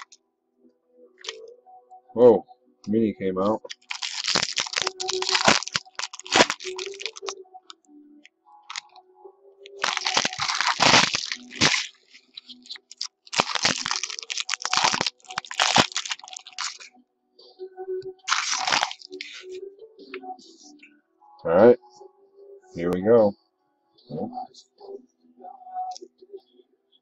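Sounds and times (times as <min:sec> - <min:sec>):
foil wrappers tearing and crumpling: 0:03.7 - 0:07.4, 0:09.8 - 0:16.9, 0:18.3 - 0:19.4.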